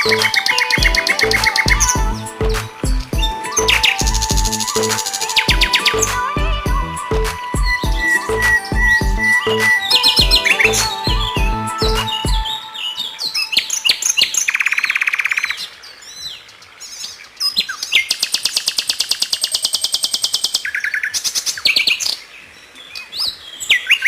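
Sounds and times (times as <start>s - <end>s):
bird song with trills: 0.0s - 16.4s.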